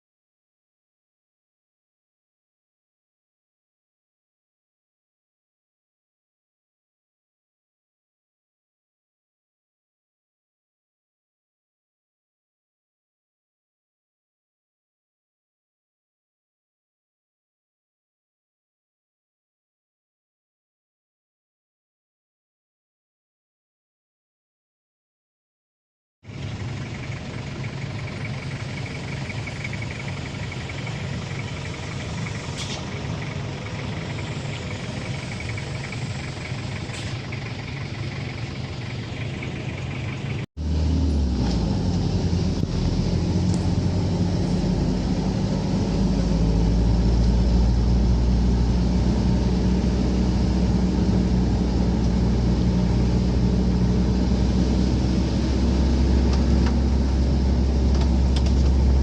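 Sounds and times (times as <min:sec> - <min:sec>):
vehicle engine running: 0:26.2 - 0:59.0.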